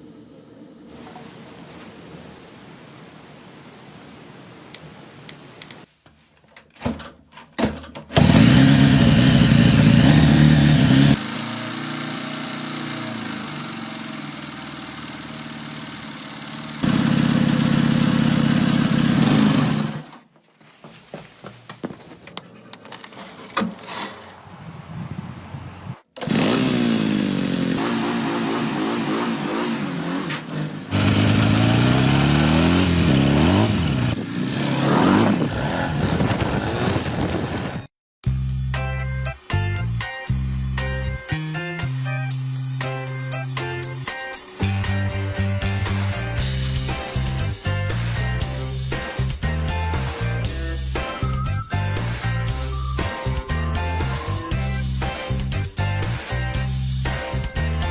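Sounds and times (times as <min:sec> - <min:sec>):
motorcycle engine revving: 0:08.1 - 0:20.1, 0:26.2 - 0:37.9.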